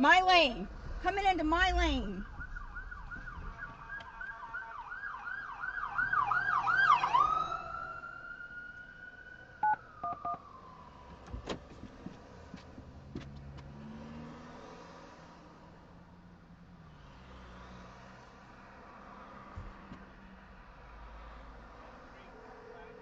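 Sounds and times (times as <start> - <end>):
emergency vehicle siren: 2.0 - 12.5.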